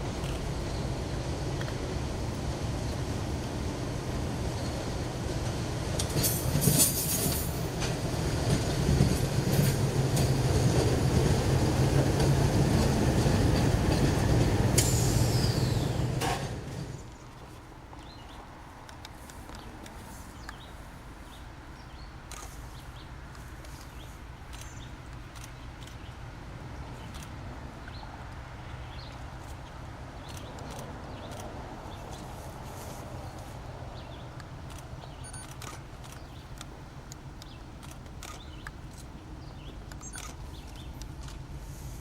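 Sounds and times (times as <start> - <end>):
train rumbling past: 0.0 - 17.2
high squeal: 14.8 - 17.0.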